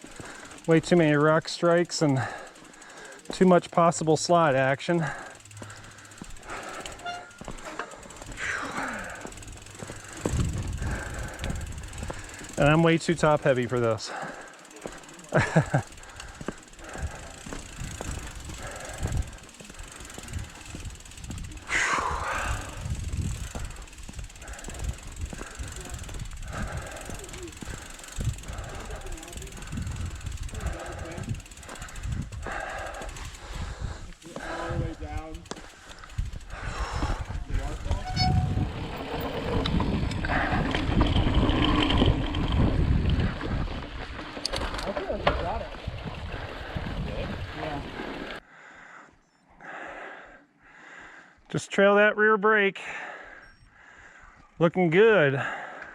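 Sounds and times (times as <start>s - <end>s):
mountain bike rolling over rock: 0.0s - 48.4s
bike clicks and knocks: 5.3s - 21.8s, 22.4s - 33.4s, 34.2s - 45.6s
footsteps: 5.5s - 8.6s
bike thumping over rock: 9.1s - 10.8s
wind rumbling on microphone: 9.4s - 12.7s, 16.2s - 48.4s.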